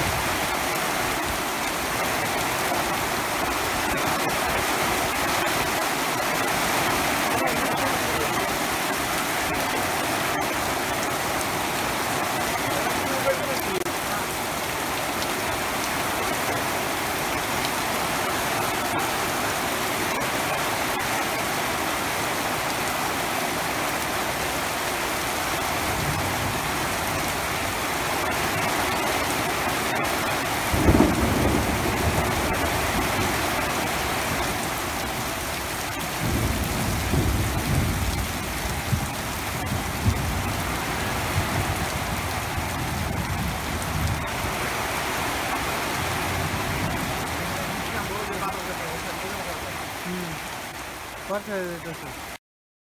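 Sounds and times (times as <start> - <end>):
heavy rain falling: 0.0 - 52.4
thunder rumbling: 25.6 - 29.2, 30.0 - 49.8
thunder clap: 30.7 - 44.6.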